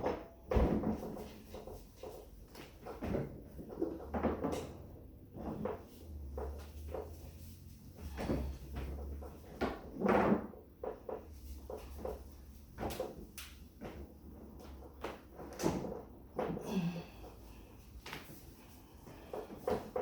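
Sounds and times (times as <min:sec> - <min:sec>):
refrigerator knocks and scrapes: 0:00.0 - 0:01.6, 0:02.6 - 0:14.0.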